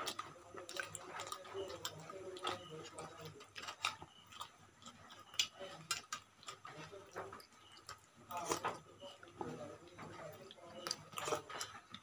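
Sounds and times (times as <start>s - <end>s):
wet chewing clicks and smacks: 0.0s - 12.0s.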